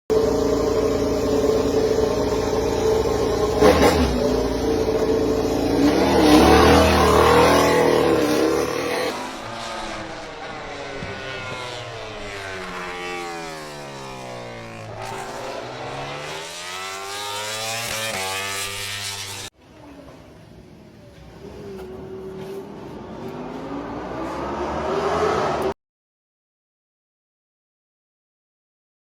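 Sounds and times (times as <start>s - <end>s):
race bike engine at high revs: 0.1s - 19.5s, 22.1s - 25.8s.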